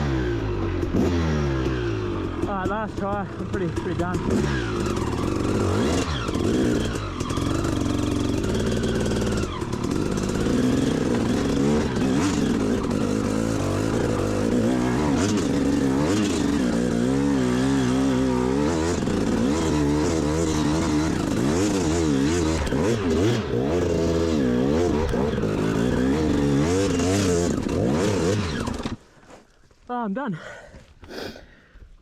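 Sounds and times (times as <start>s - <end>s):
motorbike engine revving: 0.0s - 29.0s.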